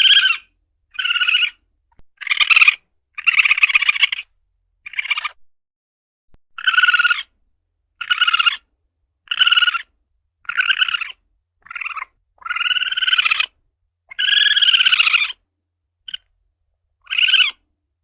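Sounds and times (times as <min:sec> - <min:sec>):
civet calling: 0:00.0 - 0:01.6, 0:02.2 - 0:05.4, 0:06.6 - 0:07.3, 0:08.0 - 0:15.4, 0:16.1 - 0:16.3, 0:17.0 - 0:17.6.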